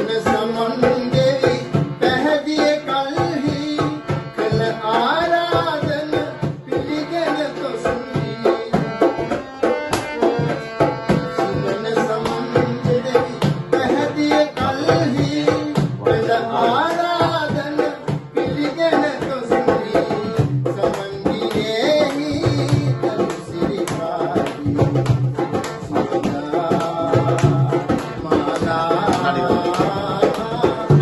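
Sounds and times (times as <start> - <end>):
old song playing: 0.0 - 31.0
steady drum beat: 7.9 - 31.0.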